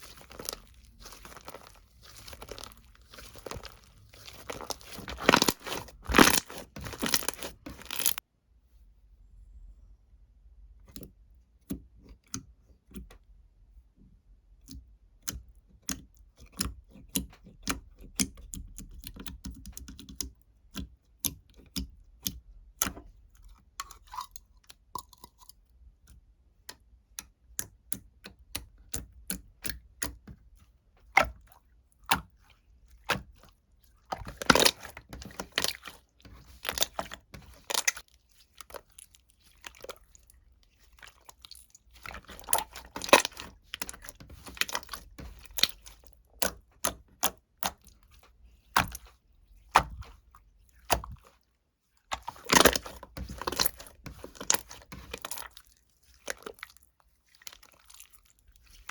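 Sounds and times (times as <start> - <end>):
crunchy food being chewed: 0.0 - 8.2, 33.8 - 46.5, 52.0 - 58.9.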